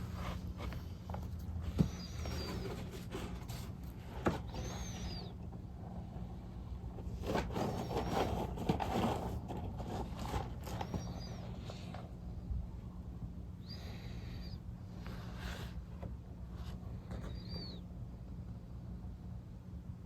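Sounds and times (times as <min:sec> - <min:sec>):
rustling: 0:00.0 - 0:06.2, 0:07.0 - 0:12.2
steady low hum: 0:00.0 - 0:20.0
small bird chirping: 0:04.4 - 0:05.4, 0:10.7 - 0:11.9, 0:17.0 - 0:17.9.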